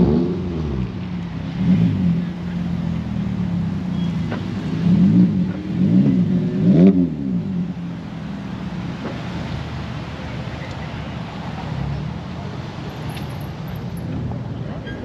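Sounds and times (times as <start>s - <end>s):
car engine revving: 0.0s - 10.2s.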